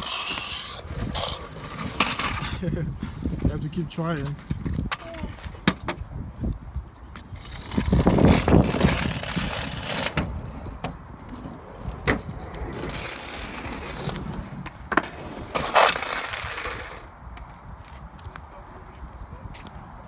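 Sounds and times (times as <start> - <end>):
wheels rolling over concrete: 0.0 - 3.5, 7.2 - 17.6.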